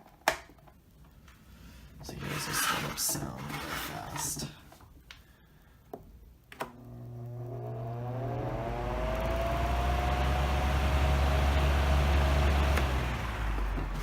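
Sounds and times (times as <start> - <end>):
fan motor whining: 6.7 - 14.0.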